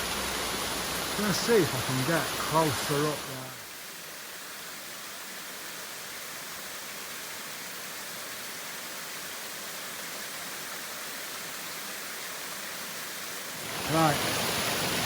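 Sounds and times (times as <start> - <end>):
waterfall rushing: 0.0 - 3.8, 12.6 - 15.0.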